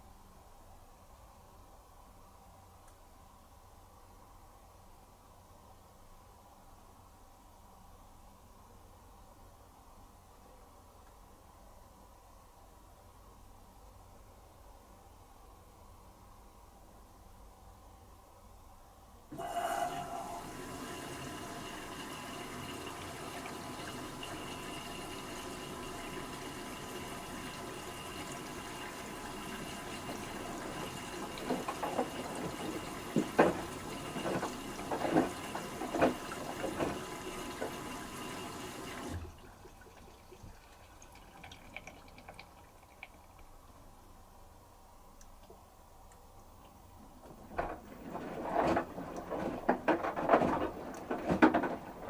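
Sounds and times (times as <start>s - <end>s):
water rushing through inlet valve: 19.3s - 43.5s
washing machine drum splashes and knocks: 20.4s - 40.6s.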